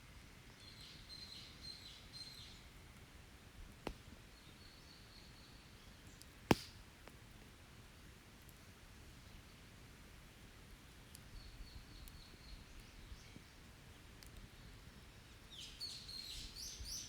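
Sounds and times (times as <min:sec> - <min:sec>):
wood fire popping: 0:02.6 - 0:04.6, 0:06.0 - 0:07.5.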